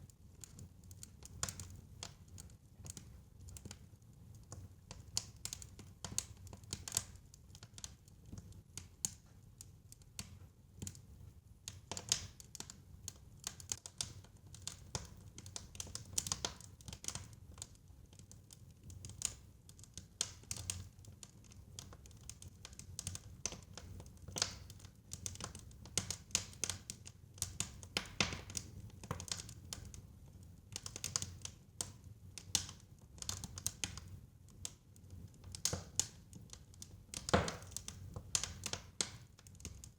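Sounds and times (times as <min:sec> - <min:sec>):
fire crackling: 0:11.8 - 0:39.9.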